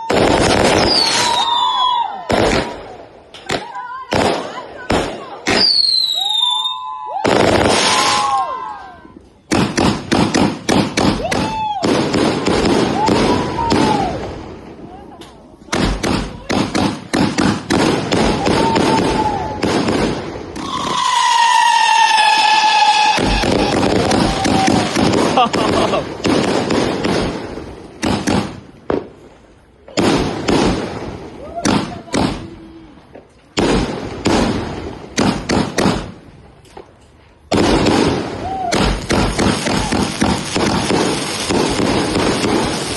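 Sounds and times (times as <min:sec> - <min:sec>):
firework bangs and crackles: 0:00.0 - 0:42.9
firework whistle gliding down: 0:00.8 - 0:02.3, 0:05.6 - 0:09.1, 0:20.6 - 0:25.0.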